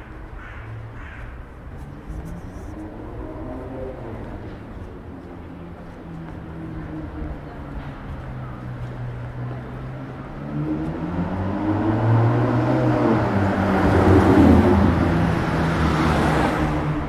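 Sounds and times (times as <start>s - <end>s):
vehicle engine hum and tyre noise: 0.0s - 17.0s.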